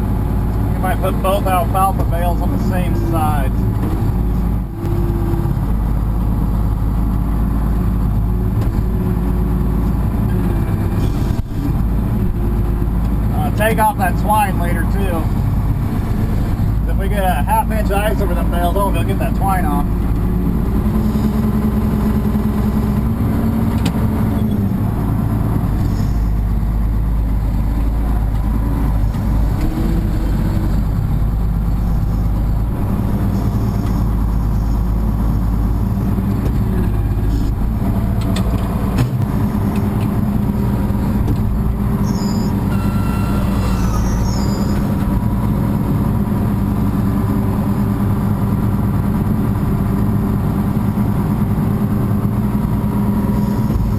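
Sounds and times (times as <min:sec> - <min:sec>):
tractor engine droning: 0:00.0 - 0:53.9
faint high squeaks: 0:42.0 - 0:44.9.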